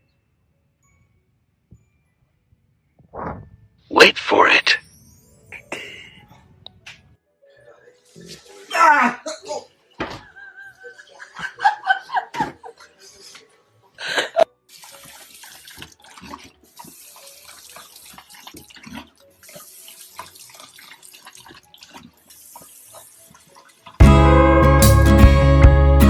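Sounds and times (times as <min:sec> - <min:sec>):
water running from a tap: 0:14.7 - 0:24.0.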